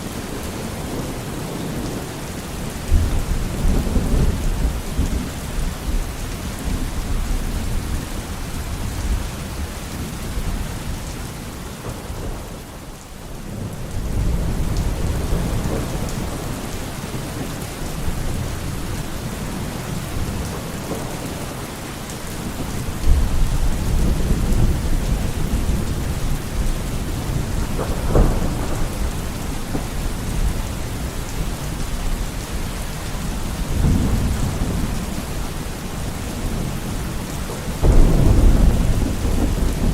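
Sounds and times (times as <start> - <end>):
heavy rain: 0.0 - 39.9
rolling thunder: 13.5 - 39.9
sharp thunder crack: 27.1 - 30.5, 37.8 - 39.9.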